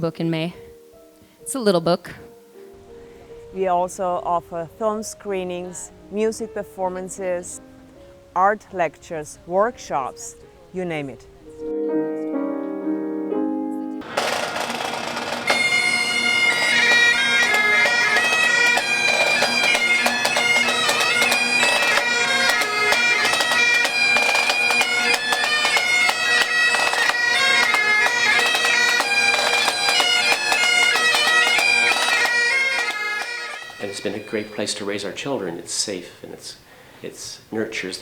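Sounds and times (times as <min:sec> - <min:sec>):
bagpipe melody: 0:13.8 - 0:35.8
bagpipe drones: 0:13.9 - 0:35.8.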